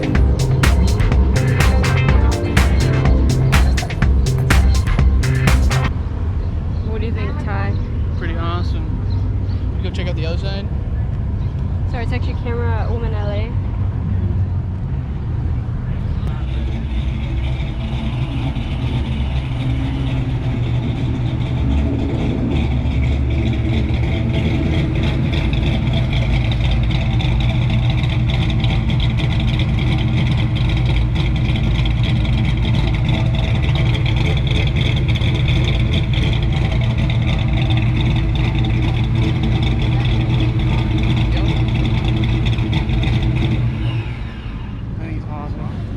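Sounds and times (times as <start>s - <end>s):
engine lopey idle: 16.3s - 44.5s.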